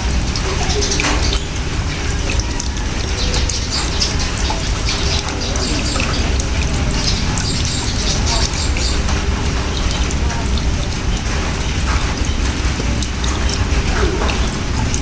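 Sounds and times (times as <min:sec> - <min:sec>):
rain drops pattering: 0:00.0 - 0:15.0
birds calling faintly: 0:00.4 - 0:10.5.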